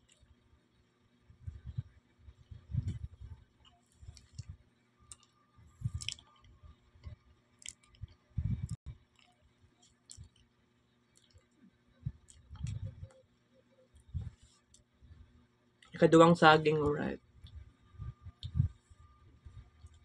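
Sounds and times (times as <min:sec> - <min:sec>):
chewing and mouth sounds: 0:02.8 - 0:10.5, 0:11.1 - 0:13.3.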